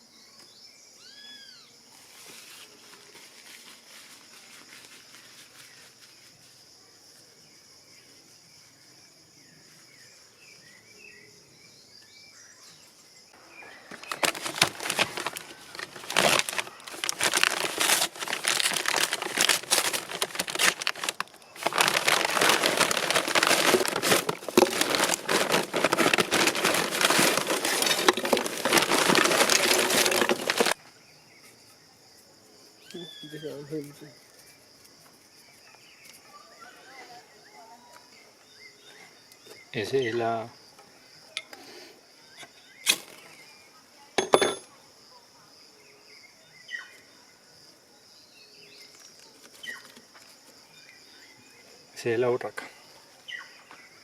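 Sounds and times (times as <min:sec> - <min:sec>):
insect chorus: 0:00.0 - 0:54.0
loud crackling rustle: 0:13.9 - 0:30.8.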